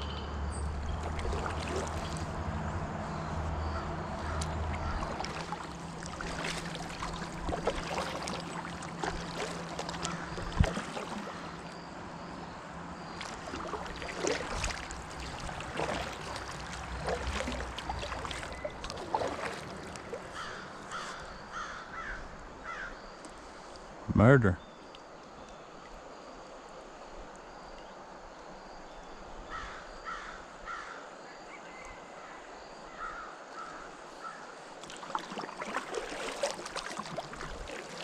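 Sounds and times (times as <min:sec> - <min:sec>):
paddle splashing water: 0:00.7 - 0:12.3, 0:13.0 - 0:22.4, 0:33.5 - 0:38.0
crows cawing: 0:20.3 - 0:23.0, 0:29.5 - 0:31.0.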